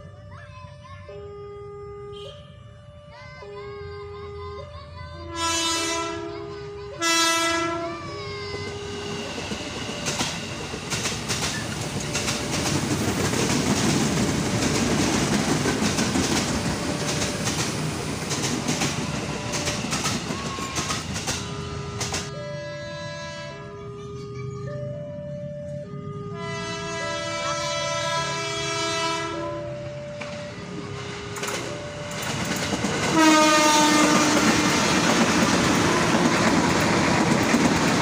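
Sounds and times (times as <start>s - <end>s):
train horn blasts: 1.1s - 2.8s, 5.3s - 9.2s, 18.7s - 23.9s, 25.7s - 31.9s, 33.0s - 36.7s
train wheels clattering over rail joints: 9.3s - 22.3s, 31.3s - 38.0s.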